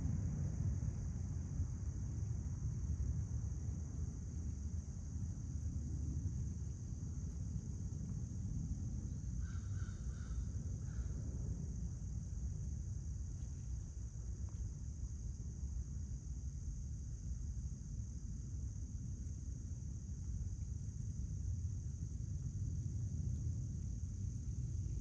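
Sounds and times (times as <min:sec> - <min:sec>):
crickets droning: 0:00.0 - 0:25.0.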